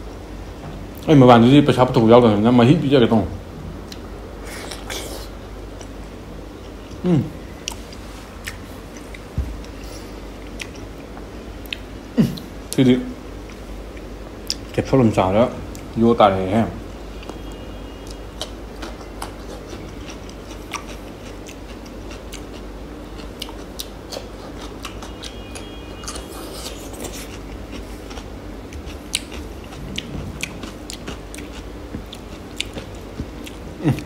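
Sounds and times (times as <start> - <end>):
chewing and biting food: 18.0 - 34.0
food crunching: 18.0 - 34.0.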